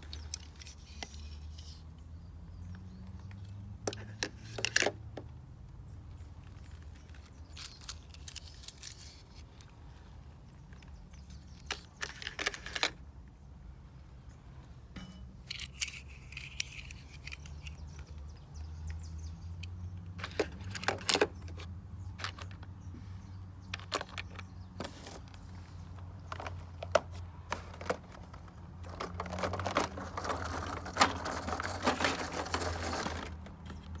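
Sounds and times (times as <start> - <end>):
toys clattering and rattling: 0.0 - 1.8, 3.9 - 5.0, 6.6 - 9.6, 11.2 - 13.0, 15.0 - 18.4, 19.7 - 22.7, 23.7 - 34.0
toy vehicles clicking and knocking: 0.0 - 1.9, 3.2 - 5.3, 6.4 - 9.7, 10.8 - 13.0, 15.4 - 22.8, 23.6 - 34.0.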